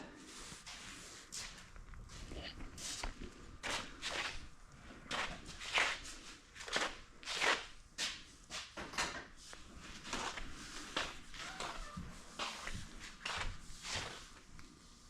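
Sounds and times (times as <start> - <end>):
scuffing footsteps: 5.1 - 8.7, 9.4 - 14.4.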